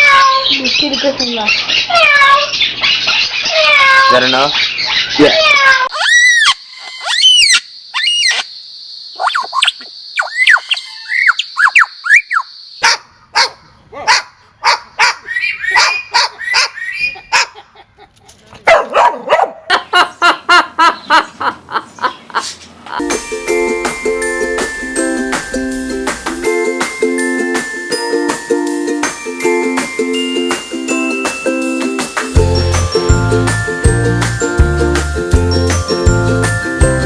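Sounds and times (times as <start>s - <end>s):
parrot whistled squawks: 6.0s - 8.5s, 9.2s - 12.5s.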